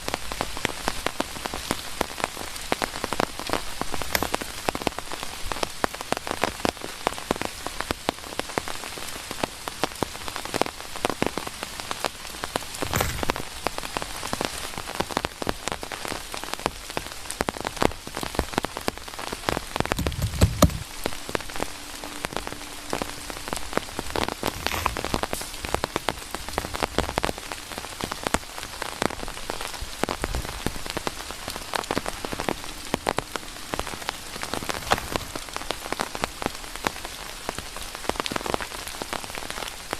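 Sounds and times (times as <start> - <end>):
rain pattering: 0.0 - 39.9
low thumps: 19.8 - 25.4.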